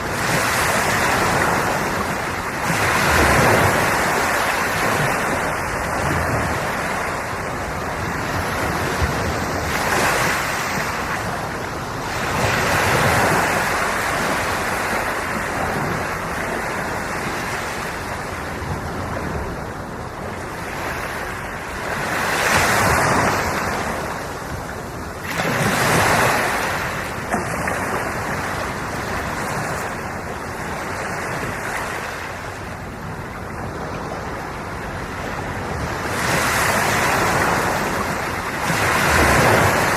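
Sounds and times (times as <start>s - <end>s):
ocean waves breaking on shore: 0.0s - 39.9s
wind on microphone: 0.0s - 39.9s.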